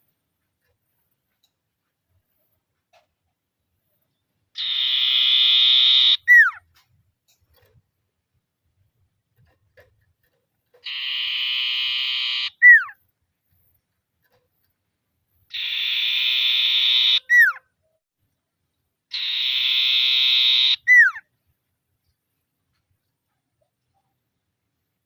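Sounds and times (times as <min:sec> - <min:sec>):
bird singing buzzy trill: 0:04.0 - 0:06.6, 0:10.8 - 0:13.0, 0:15.5 - 0:17.7, 0:19.1 - 0:21.2.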